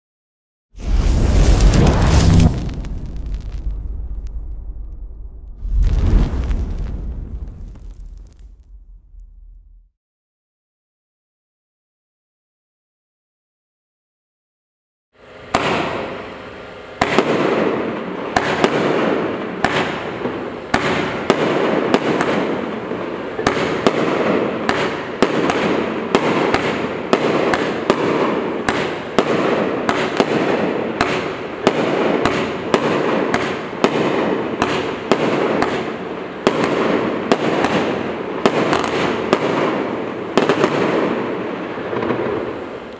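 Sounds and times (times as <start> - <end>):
firework hissing: 0.8 - 9.6
firework bangs: 0.8 - 9.9, 15.5 - 16.3, 17.0 - 42.9.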